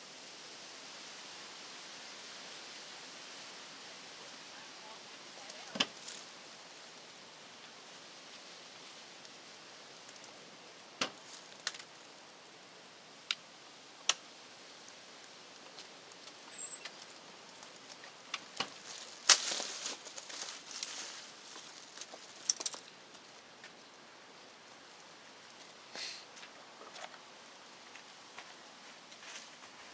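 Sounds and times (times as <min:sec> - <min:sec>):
rustling: 0:15.6 - 0:23.8.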